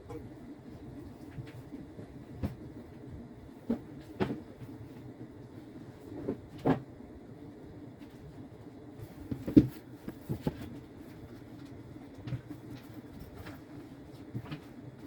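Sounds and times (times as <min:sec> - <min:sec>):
low steady background hum: 0:00.0 - 0:15.0
knocks and thumps: 0:09.2 - 0:10.8.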